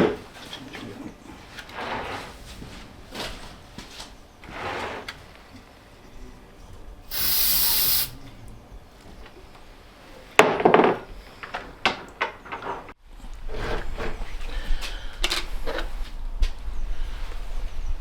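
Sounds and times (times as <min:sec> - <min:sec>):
spray hiss: 0:07.1 - 0:08.2.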